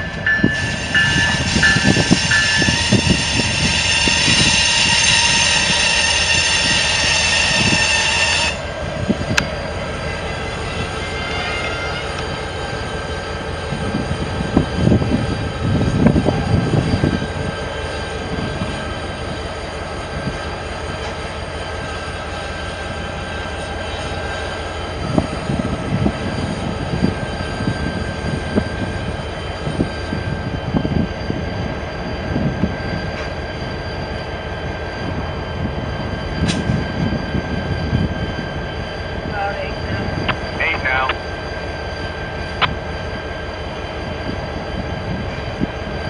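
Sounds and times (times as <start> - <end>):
high ringing tone: 0.0 - 8.6, 26.2 - 46.0
train cars rumbling past: 0.0 - 46.0.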